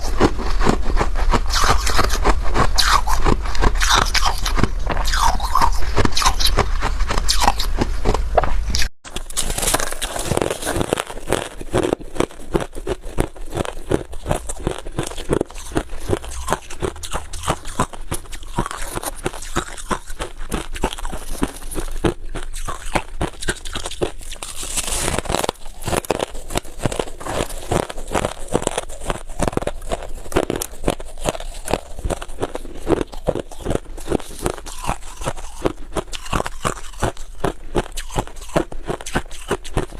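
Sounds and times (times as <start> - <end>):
ice being chewed crunching: 0.0 - 39.9.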